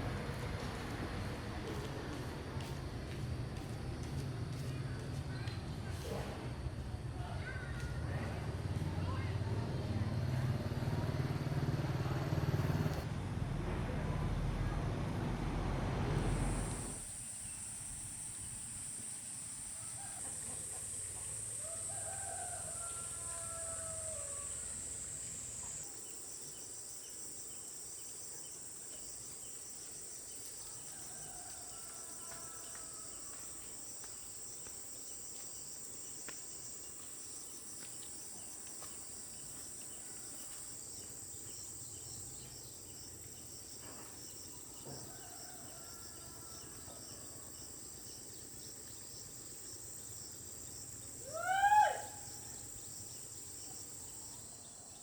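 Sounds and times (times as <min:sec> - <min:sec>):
insects droning and chirping: 0:16.2 - 0:55.0
loud rising falling bird call: 0:51.2 - 0:52.8.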